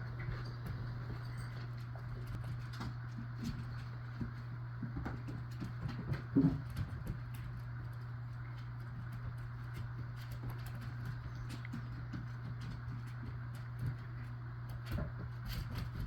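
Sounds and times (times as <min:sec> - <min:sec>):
puppies scuffling: 0:00.0 - 0:16.0.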